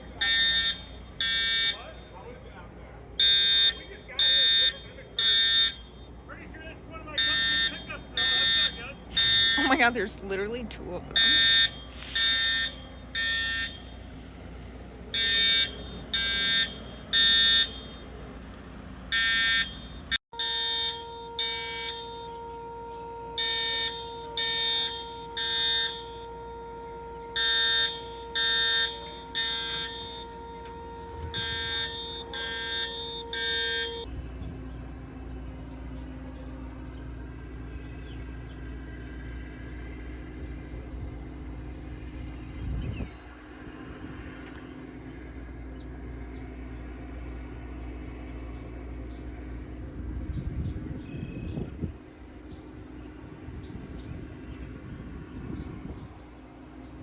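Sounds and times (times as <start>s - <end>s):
fire alarm beeping: 0.0s - 18.5s, 19.1s - 34.1s
steady humming tone: 0.0s - 57.0s.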